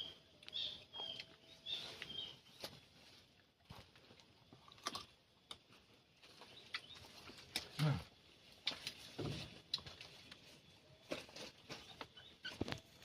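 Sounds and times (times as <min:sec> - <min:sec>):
crunching while eating: 0:03.6 - 0:10.4.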